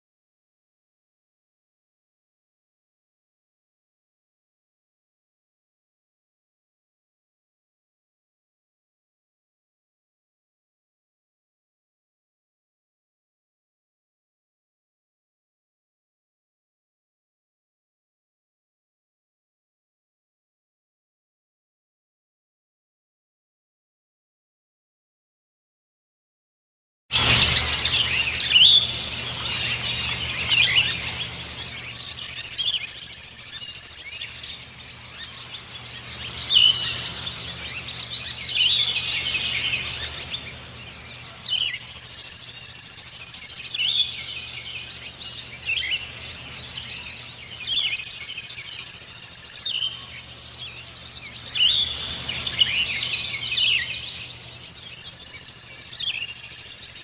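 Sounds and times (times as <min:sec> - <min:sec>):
songbird trilling and chirping: 0:27.2 - 0:57.0.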